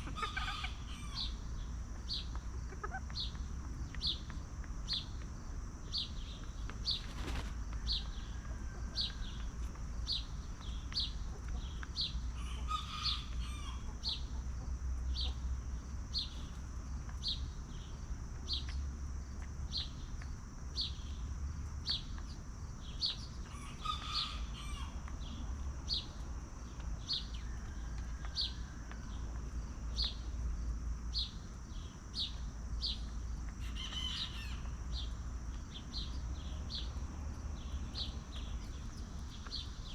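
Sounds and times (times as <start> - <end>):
chicken calling: 0.0 - 1.4, 33.6 - 34.7.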